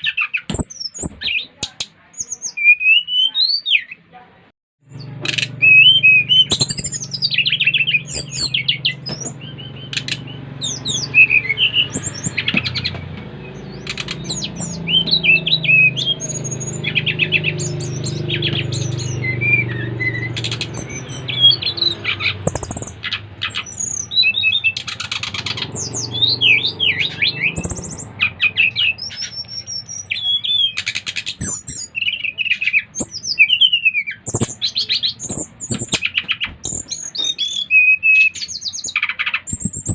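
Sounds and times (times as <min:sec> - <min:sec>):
songbirds chirping: 0:00.0 - 0:39.9
steady low hum: 0:04.9 - 0:24.6.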